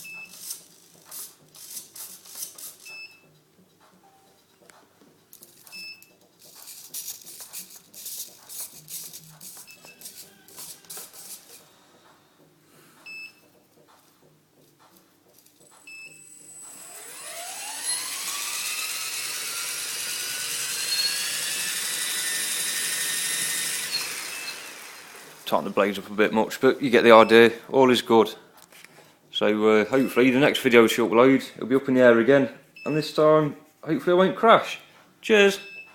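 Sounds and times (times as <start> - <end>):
electric helicopter rotor whine: 16.2 - 25.5.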